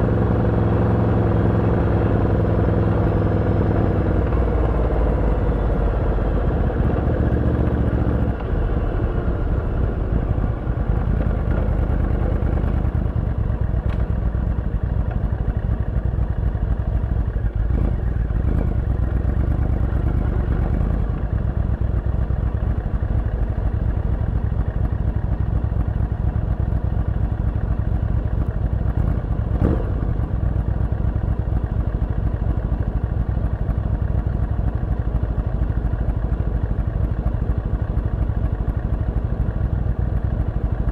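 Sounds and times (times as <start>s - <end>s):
motorcycle engine exhaust note: 0.0s - 13.4s.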